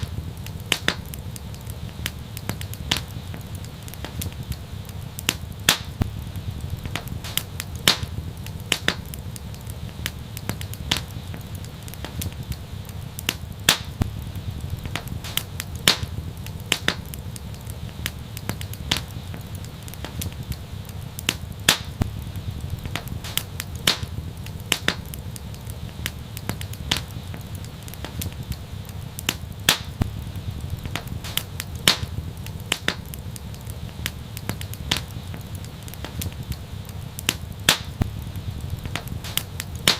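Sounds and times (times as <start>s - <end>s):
wood fire crackling: 0.0s - 39.9s
low rumble: 6.0s - 7.3s, 14.0s - 15.3s, 22.0s - 23.2s, 30.0s - 31.3s, 38.0s - 39.3s.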